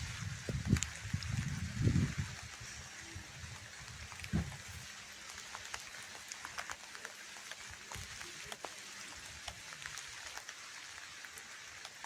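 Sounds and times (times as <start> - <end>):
heavy rain hissing: 0.0 - 12.0
raindrop taps: 3.9 - 8.7.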